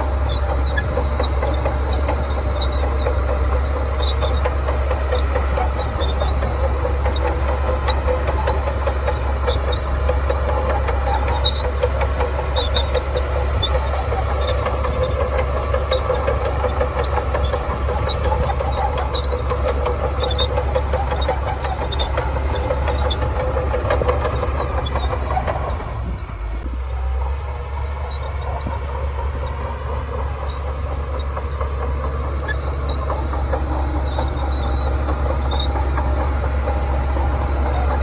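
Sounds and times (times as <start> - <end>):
rapid metallic clatter: 0.0 - 26.2, 28.0 - 38.0
bulldozer diesel engine running: 0.0 - 38.0.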